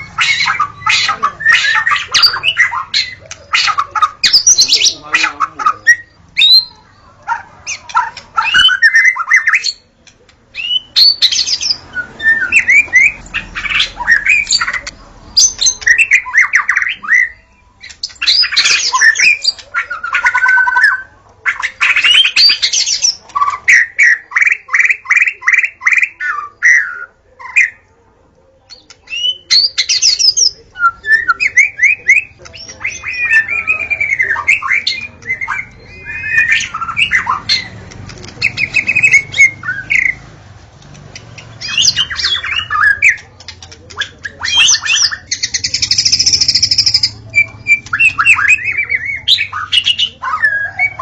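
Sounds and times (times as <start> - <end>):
bird singing whistled phrases: 10.6 - 14.8, 29.1 - 37.7, 44.2 - 51.0.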